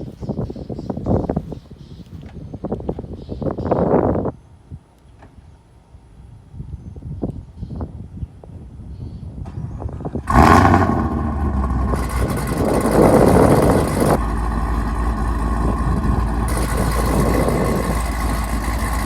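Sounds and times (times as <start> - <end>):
car engine starting and idling: 9.5 - 19.0.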